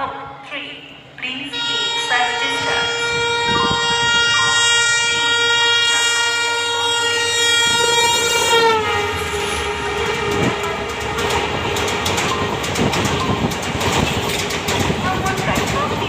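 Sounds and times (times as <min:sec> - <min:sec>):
locomotive horn blaring: 0:01.2 - 0:12.6
wheels clacking over rail joints: 0:08.6 - 0:16.0.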